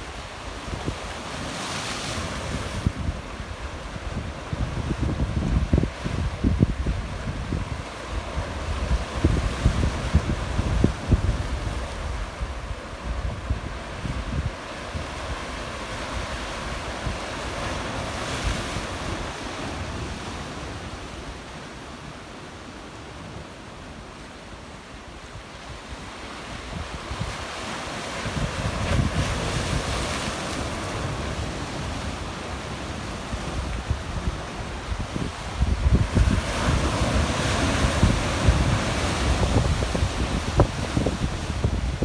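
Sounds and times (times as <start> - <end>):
sea waves washing among rocks: 26.2 - 42.0
wind buffeting microphone: 28.2 - 30.0, 33.3 - 42.0.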